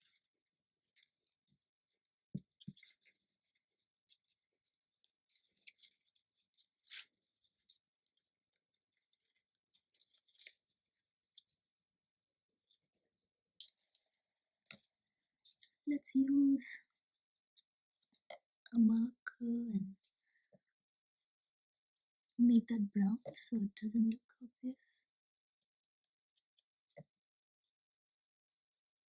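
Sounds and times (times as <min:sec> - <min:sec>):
card and paper rustling: 0:02.4 - 0:11.7.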